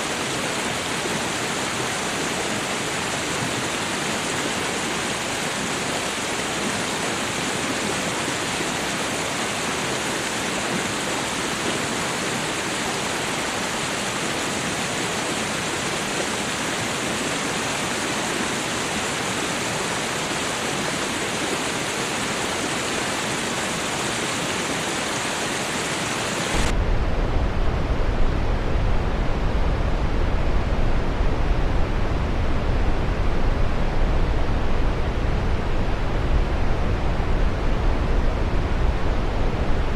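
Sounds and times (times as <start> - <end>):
deep rumbling water rush: 0.0 - 39.9
hissing rush of running water: 0.0 - 39.9.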